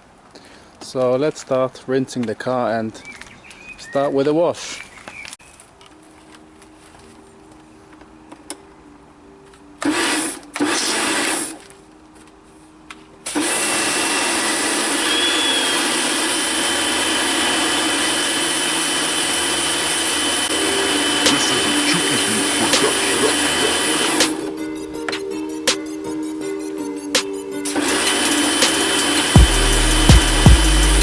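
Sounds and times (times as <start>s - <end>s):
pressure washer spraying: 9.8s - 11.6s, 13.3s - 24.5s, 27.6s - 31.0s.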